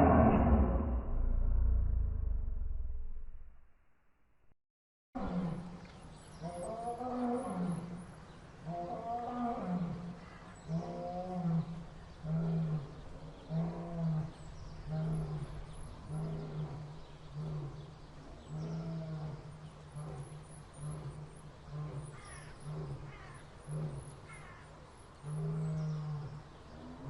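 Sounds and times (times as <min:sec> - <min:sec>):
lion roaring: 0:00.0 - 0:03.1.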